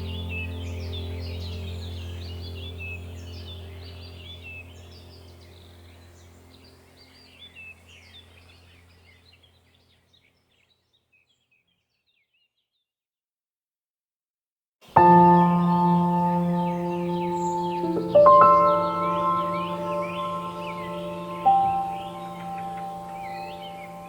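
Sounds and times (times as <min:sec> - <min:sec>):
low steady drone: 0:00.0 - 0:07.7, 0:15.0 - 0:24.0
small birds chirping: 0:00.0 - 0:12.9, 0:14.9 - 0:24.0.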